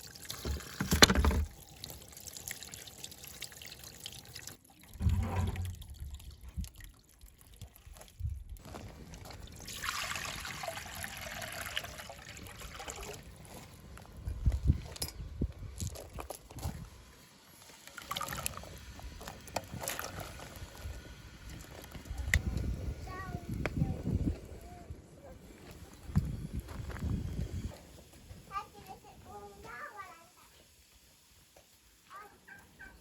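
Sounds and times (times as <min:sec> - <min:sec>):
water pouring and trickling: 0:00.0 - 0:24.4.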